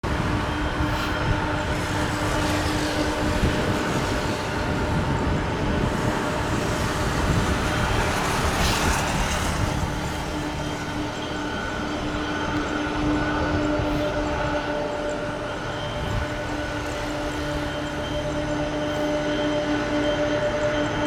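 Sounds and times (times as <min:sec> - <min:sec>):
jet airliner engines rumbling: 0:00.0 - 0:21.0.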